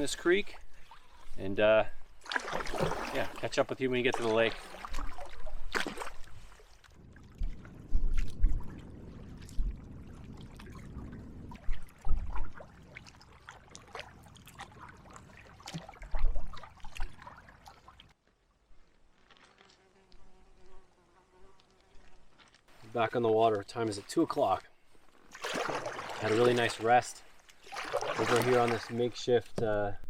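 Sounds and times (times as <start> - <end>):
paddle splashing in water: 2.2 - 18.2, 25.1 - 29.2
faint insect buzz: 19.4 - 22.4.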